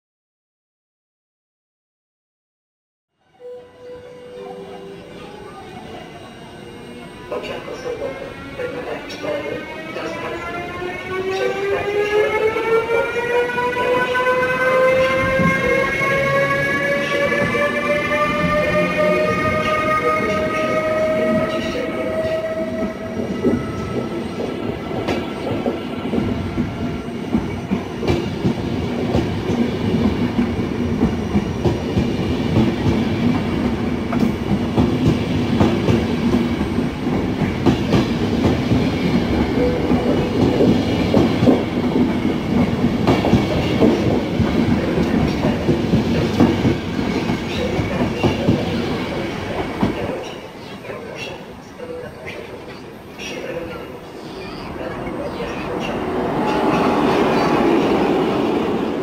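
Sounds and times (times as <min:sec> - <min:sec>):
train wheels clattering on rails: 0:13.8 - 0:50.4.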